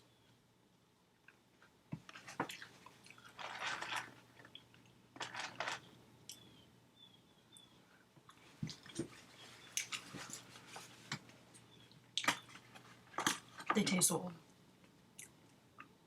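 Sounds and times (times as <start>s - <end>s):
chewing and crunching fries: 1.2s - 5.6s.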